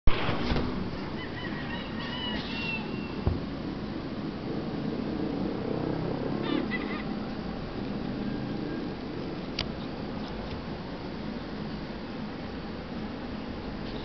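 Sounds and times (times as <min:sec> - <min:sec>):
goose-like honking bird calls: 0:06.4 - 0:07.2.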